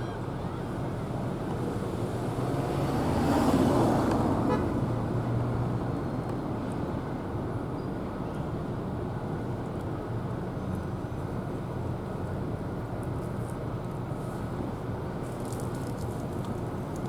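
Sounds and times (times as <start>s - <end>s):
steady traffic noise: 0.0s - 17.0s
vehicle passing by: 1.7s - 5.9s.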